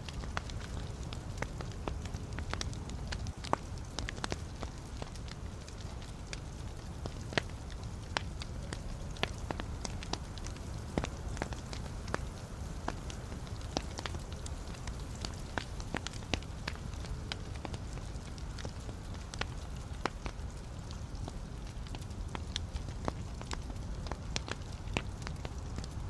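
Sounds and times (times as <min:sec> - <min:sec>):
burning logs rumble: 0:00.0 - 0:26.0
wood fire crackling: 0:00.0 - 0:26.0.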